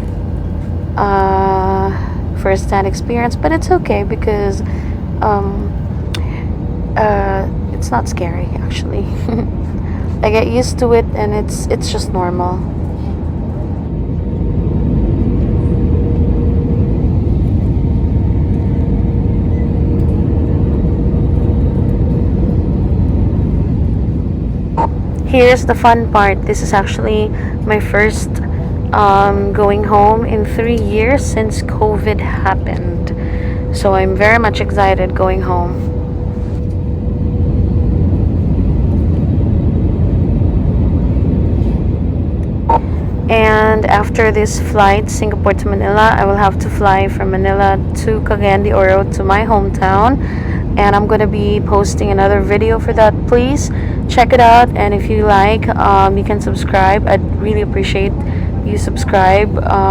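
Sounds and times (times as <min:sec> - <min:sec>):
faint steady hum: 0:00.0 - 0:59.9
low rumble of engines and airflow: 0:00.0 - 0:59.9.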